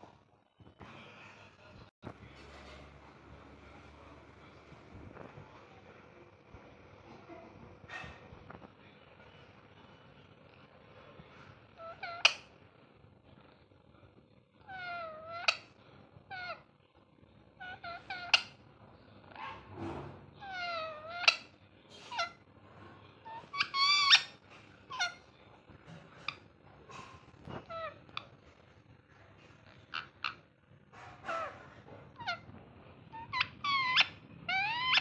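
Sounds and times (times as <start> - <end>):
parrot squawking: 11.8 - 12.5, 14.7 - 15.7, 16.3 - 16.6, 17.6 - 18.6, 20.4 - 22.4, 23.2 - 25.3, 26.2 - 28.4, 29.6 - 30.4, 31.0 - 32.5, 33.1 - 35.0.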